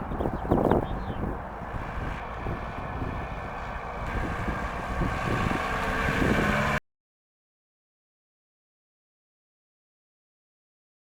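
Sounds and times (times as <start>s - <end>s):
diesel car engine running: 0.0s - 6.8s
wind noise on microphone: 0.0s - 6.8s.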